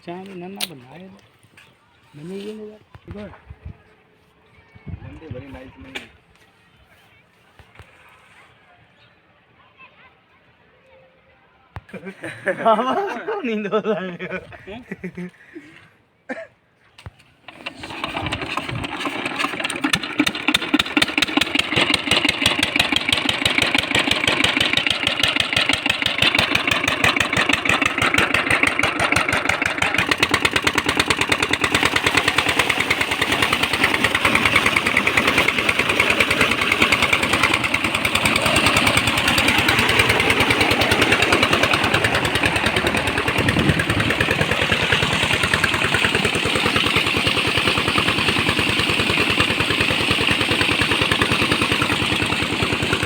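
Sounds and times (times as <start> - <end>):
tractor engine chugging: 17.5 - 53.0.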